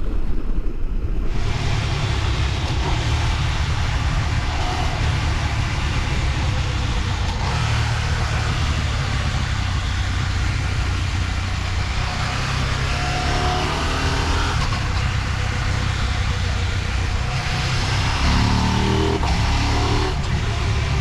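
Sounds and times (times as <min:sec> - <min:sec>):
wind noise: 0:00.0 - 0:07.7
motorcycle engine running: 0:01.3 - 0:21.0.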